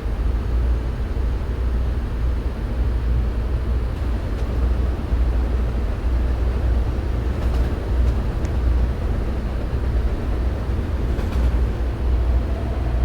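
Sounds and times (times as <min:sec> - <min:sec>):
subway train rumble: 0:00.0 - 0:13.0.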